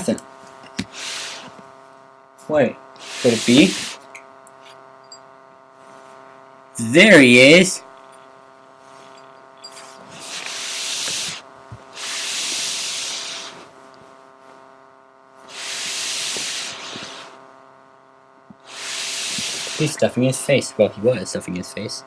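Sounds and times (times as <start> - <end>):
faint steady hum: 0.0 - 22.0
rushes of hissing noise: 0.8 - 1.6, 3.0 - 4.1, 10.0 - 13.7, 15.5 - 17.4, 18.6 - 20.1.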